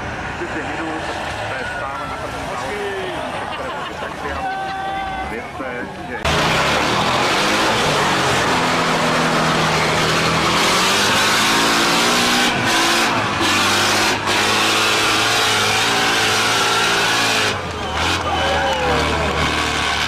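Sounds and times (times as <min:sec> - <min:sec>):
diesel truck engine revving: 0:05.3 - 0:20.0.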